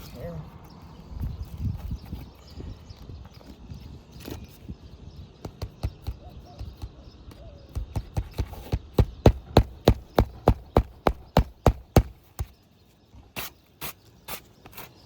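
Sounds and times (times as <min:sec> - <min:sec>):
hammer striking roof shingles: 0:07.8 - 0:12.5.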